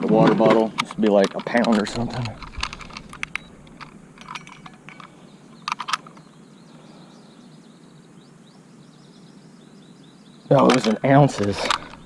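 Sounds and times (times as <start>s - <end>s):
faint high-pitched chirping: 3.2s - 12.0s.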